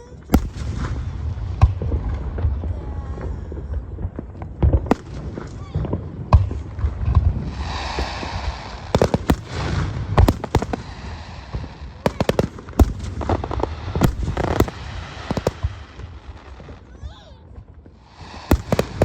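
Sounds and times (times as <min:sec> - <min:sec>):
fireworks cracks and booms: 0:00.0 - 0:19.0
hissing crackle: 0:06.7 - 0:16.6, 0:18.0 - 0:19.0.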